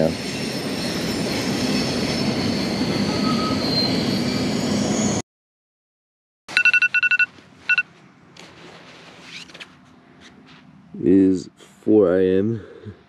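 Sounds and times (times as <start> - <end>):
faint high squeal: 0.0 - 5.2.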